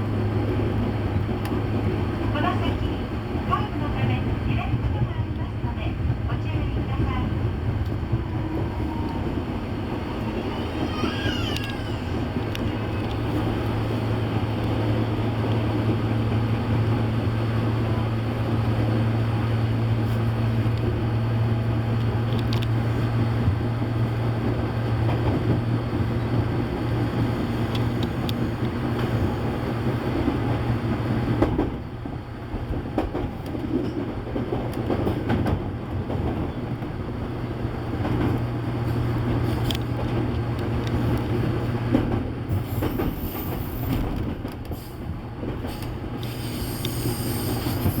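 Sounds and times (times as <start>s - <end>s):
electric train hum: 0.0s - 48.0s
wheels clattering on rail: 0.0s - 48.0s.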